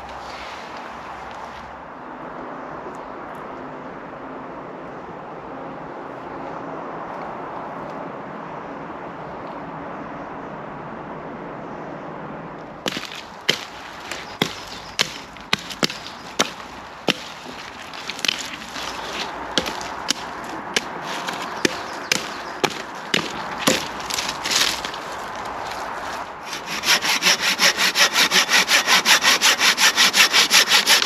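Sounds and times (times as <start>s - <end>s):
hatchet chopping wood: 12.9s - 18.6s, 19.2s - 24.4s, 26.4s - 31.0s.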